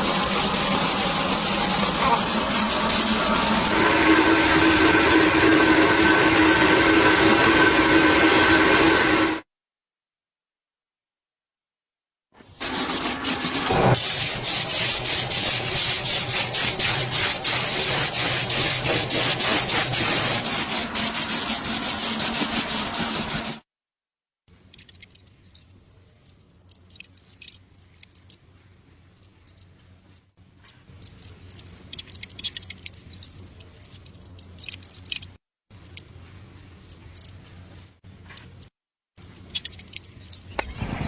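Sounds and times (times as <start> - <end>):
hand tool scraping: 0.0 - 8.5, 12.6 - 23.6
scattered clicks and handling: 24.5 - 40.6.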